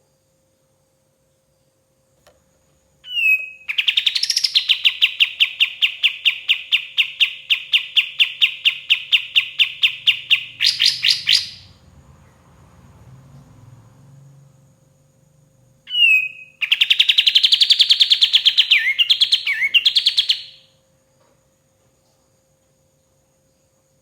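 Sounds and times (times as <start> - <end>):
bird singing rapid notes: 3.0 - 11.8, 15.9 - 20.7.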